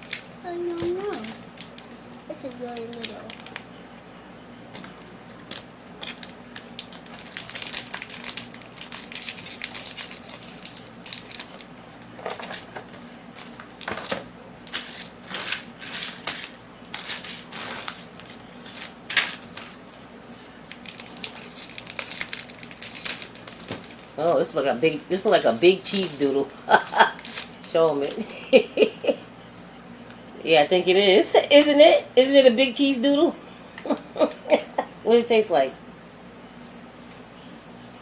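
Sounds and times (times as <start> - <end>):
plastic wrapper crinkling and tearing: 0.0 - 3.7, 5.4 - 19.8, 20.6 - 24.2, 24.9 - 28.3.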